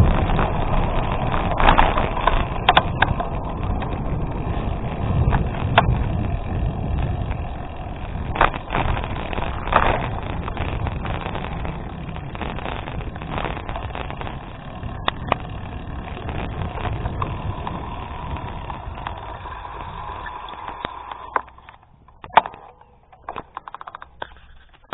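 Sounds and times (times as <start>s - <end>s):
bike clicks and rattles: 0.0s - 24.9s
bike tyres rolling on gravel: 0.0s - 24.9s
wind buffeting microphone: 0.0s - 24.9s.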